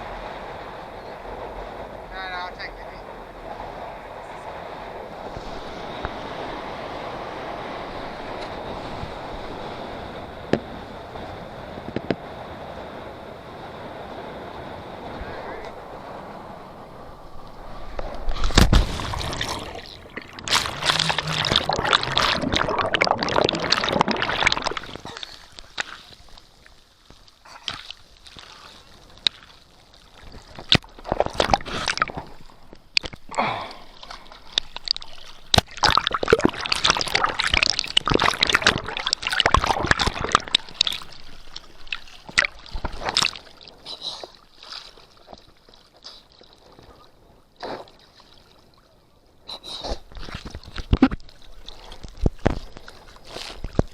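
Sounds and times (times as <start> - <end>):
water sloshing and splashing: 17.2 - 49.0, 49.9 - 53.9.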